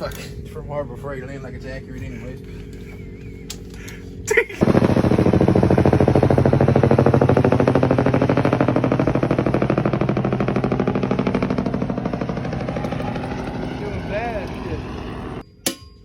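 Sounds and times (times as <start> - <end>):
power tool hammering rattle: 4.6 - 15.4.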